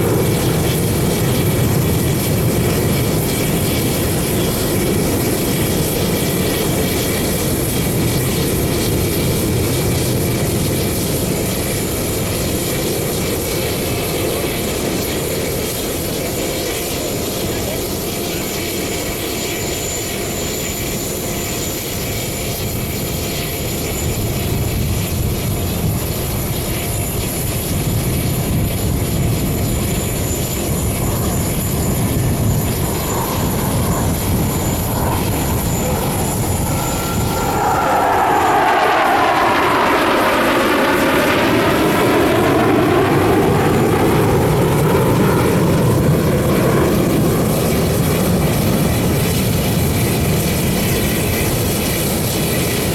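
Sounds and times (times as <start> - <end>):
jet engines roaring: 0.0 - 52.9
jets whooshing overhead: 30.6 - 47.2.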